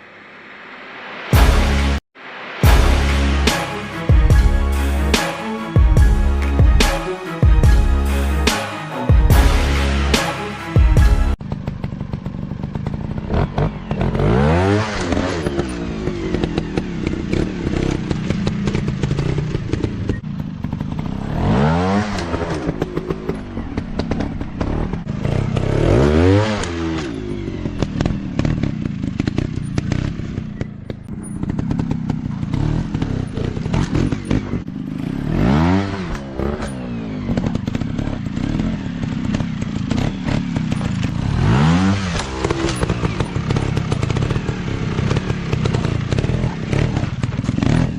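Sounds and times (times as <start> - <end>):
dirt bike engine revving: 9.3 - 47.9.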